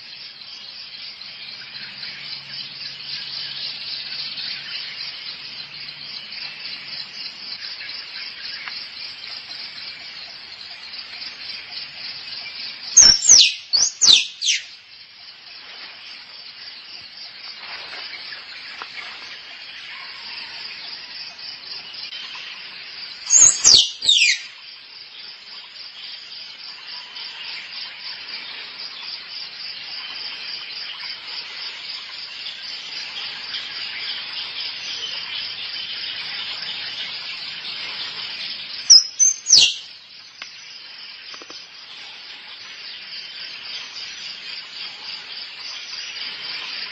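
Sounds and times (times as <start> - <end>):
high insect trill: 0.0 - 46.9
squirrel chirps: 13.0 - 14.7, 23.3 - 24.5, 38.9 - 39.8.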